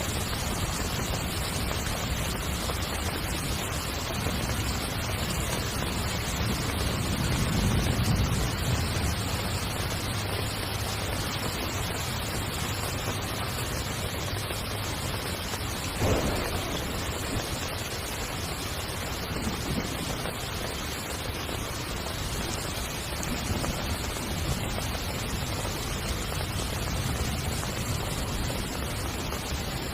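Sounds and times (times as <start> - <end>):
heavy rain on a tent: 0.0 - 29.9
brief loud hit: 16.0 - 17.4.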